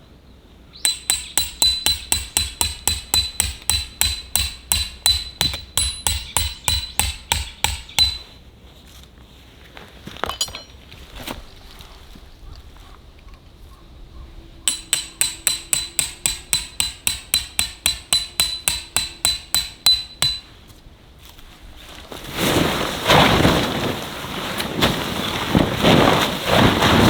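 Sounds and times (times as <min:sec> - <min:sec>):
fast sharp knocks: 0:00.9 - 0:08.3, 0:14.7 - 0:20.5
metallic clink: 0:00.9 - 0:08.4, 0:10.2 - 0:10.8, 0:14.7 - 0:20.6.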